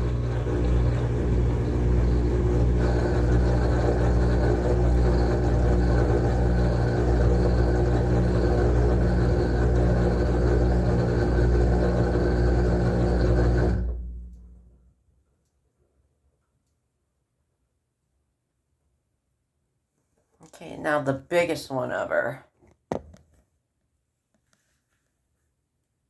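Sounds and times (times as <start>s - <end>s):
washing machine spinning: 0.0s - 14.7s.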